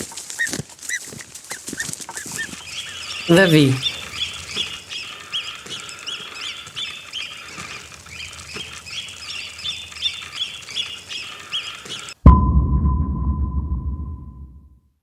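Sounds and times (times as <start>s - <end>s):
goslings peeping: 0.4s - 12.2s.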